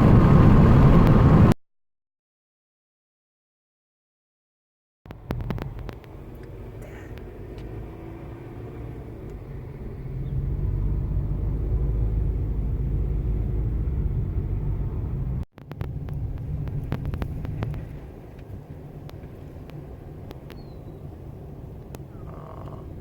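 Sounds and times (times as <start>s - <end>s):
car engine and tyres rumbling: 0.0s - 1.6s, 5.1s - 23.0s.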